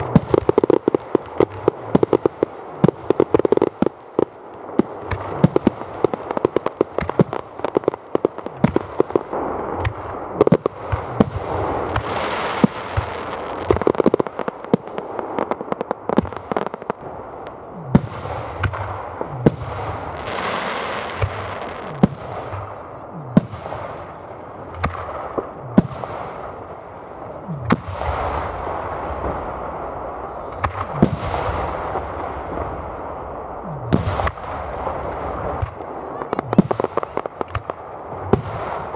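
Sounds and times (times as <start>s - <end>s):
fireworks bursting bangs: 0.0s - 38.9s
fireworks crackling: 0.0s - 38.9s.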